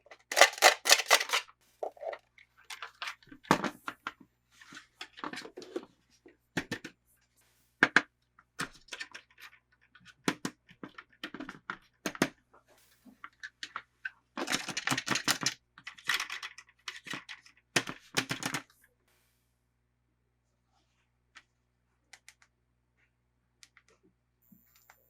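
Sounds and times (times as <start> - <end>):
plastic toy parts clicking: 0.0 - 3.2, 14.4 - 18.6
packaging crinkling: 0.1 - 2.2.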